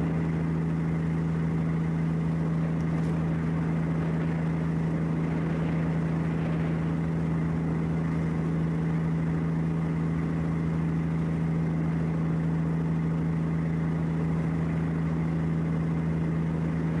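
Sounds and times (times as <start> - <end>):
engine droning steadily: 0.0 - 17.0.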